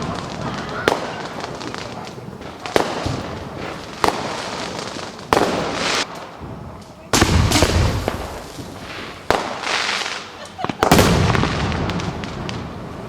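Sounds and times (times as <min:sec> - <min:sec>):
crackling hiss: 0:00.0 - 0:13.0
fireworks sharp bangs: 0:00.0 - 0:13.0
deep firework boom: 0:07.2 - 0:09.7.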